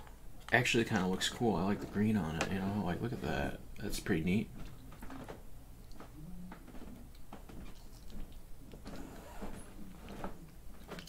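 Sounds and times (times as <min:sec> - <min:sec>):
low steady hum: 0:00.0 - 0:11.0
chewing gummy candy: 0:07.1 - 0:08.6.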